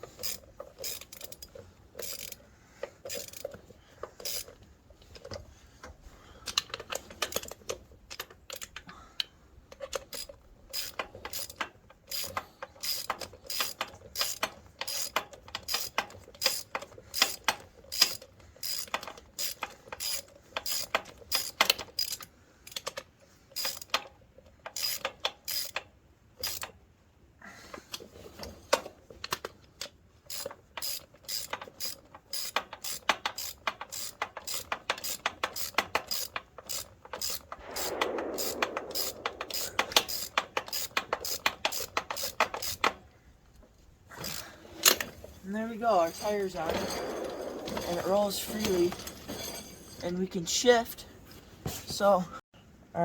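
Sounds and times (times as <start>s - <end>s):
ratchet wrench clicking: 0.1s - 2.4s, 3.0s - 3.6s, 4.2s - 4.6s, 9.7s - 23.0s, 23.6s - 24.1s, 24.7s - 25.8s, 26.4s - 26.7s, 30.3s - 43.0s.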